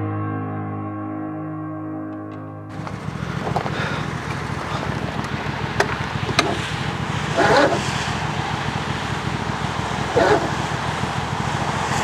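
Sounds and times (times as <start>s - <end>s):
engine cranked by starter: 2.7s - 12.0s.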